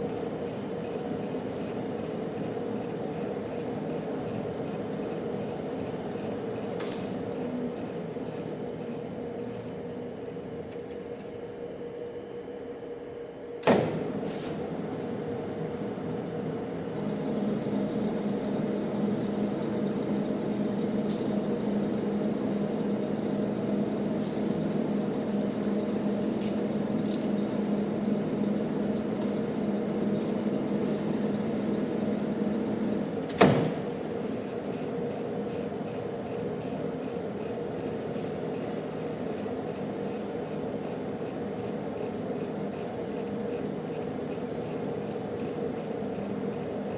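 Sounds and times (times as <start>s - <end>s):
high steady whine: 17.0s - 33.2s
metal lathe humming: 17.0s - 33.2s.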